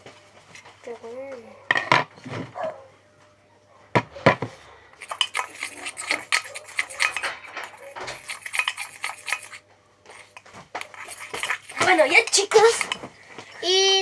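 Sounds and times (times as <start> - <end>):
utensil clinking and scraping bowl: 4.3 - 13.1.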